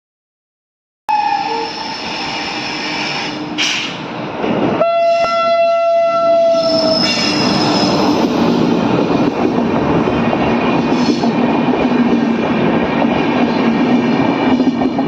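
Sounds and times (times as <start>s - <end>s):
train horn blast: 1.1s - 2.0s, 4.8s - 7.6s
train rumbling and rattling past: 1.1s - 15.0s.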